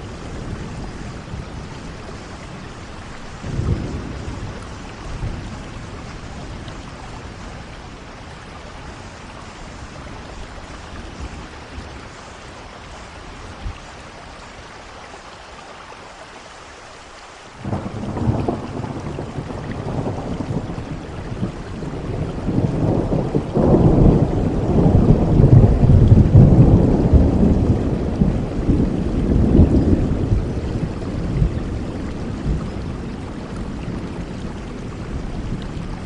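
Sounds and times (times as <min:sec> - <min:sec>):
rolling thunder: 0:00.0 - 0:07.8, 0:17.6 - 0:36.0
steady rain falling: 0:00.0 - 0:36.0.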